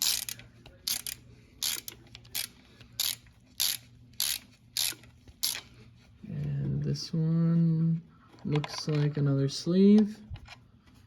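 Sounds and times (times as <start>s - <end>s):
ratchet wrench clicking: 0.0s - 5.6s.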